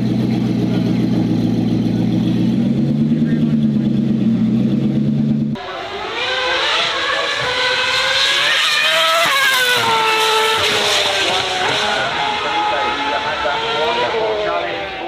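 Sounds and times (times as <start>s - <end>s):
low engine rumble: 0.0s - 5.7s
racing engine accelerating: 0.0s - 15.0s.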